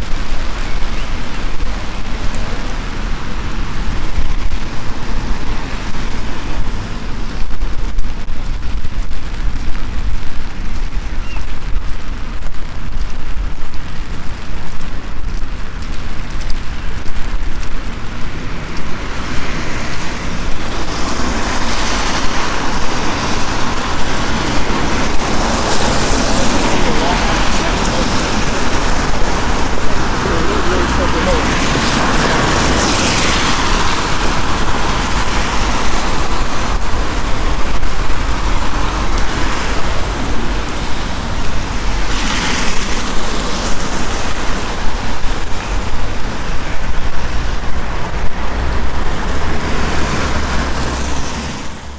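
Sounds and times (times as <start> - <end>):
rain drops ticking: 0.0 - 51.9
loud rushing sound: 18.3 - 51.9.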